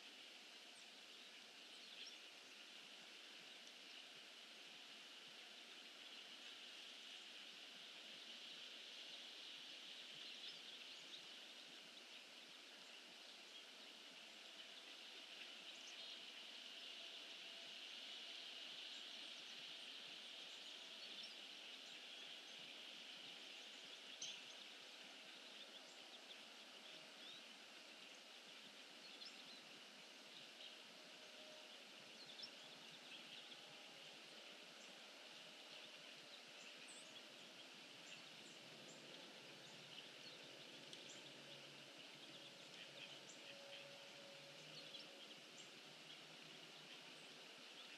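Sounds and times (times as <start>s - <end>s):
faint hiss: 0.0s - 47.9s
faint ticks: 40.8s - 41.3s.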